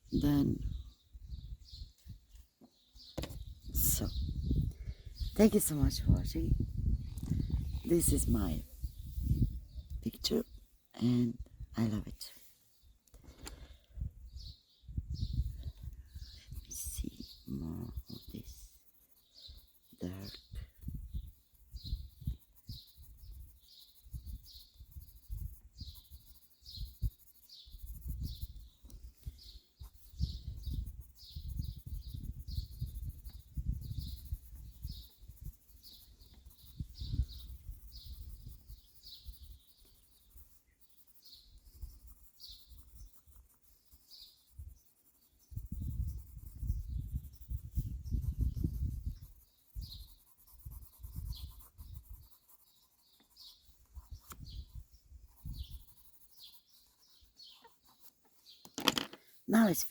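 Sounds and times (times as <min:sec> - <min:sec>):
birds chirping: 0:00.0 - 0:59.9
pencil scribbling on paper: 0:07.7 - 0:10.4, 0:16.2 - 0:58.6.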